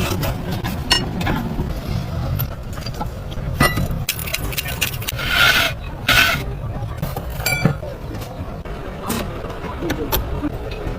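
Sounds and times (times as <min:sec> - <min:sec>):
hand tool scraping and rubbing: 0:05.0 - 0:06.4.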